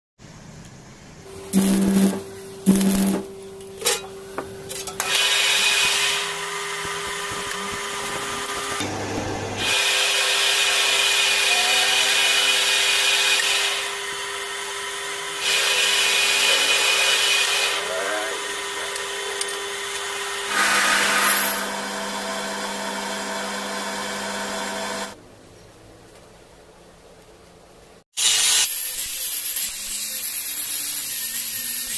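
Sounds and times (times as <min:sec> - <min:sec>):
power tool humming: 0:01.3 - 0:03.4, 0:05.0 - 0:25.2.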